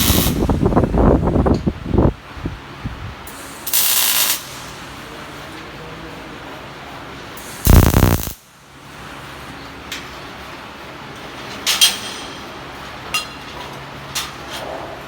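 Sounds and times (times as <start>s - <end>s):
loud burst of noise: 0.0s - 0.8s, 7.6s - 8.4s.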